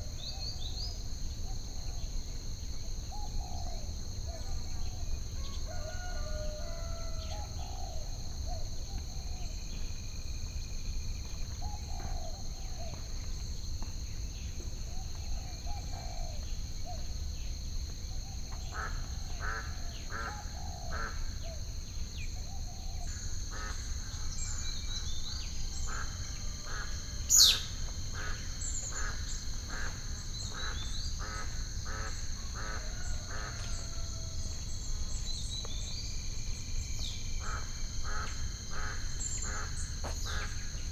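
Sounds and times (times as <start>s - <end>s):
birds calling: 25.2s - 34.1s.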